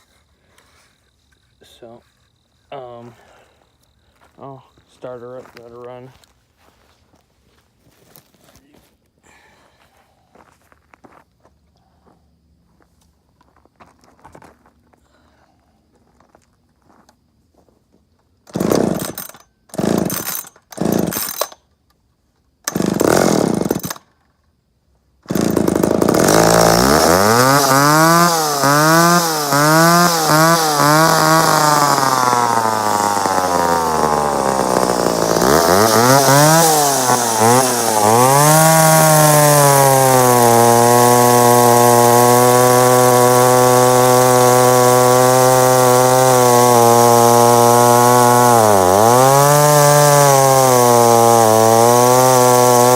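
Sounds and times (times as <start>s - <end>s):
chainsaw pull-starting and revving: 18.5s - 21.6s, 22.6s - 24.1s, 25.2s - 52.9s.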